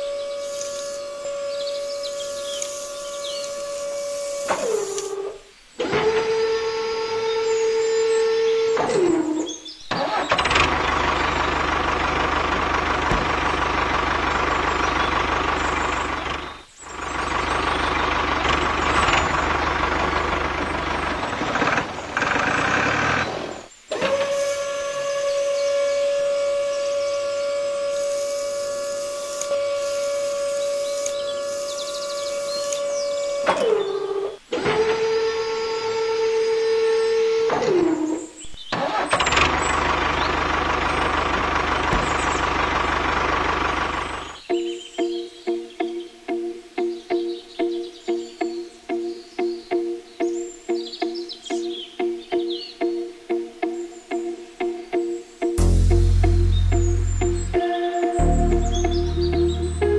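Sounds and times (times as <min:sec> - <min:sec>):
small electric motor whine: 0:00.0 - 0:09.5, 0:23.9 - 0:38.3.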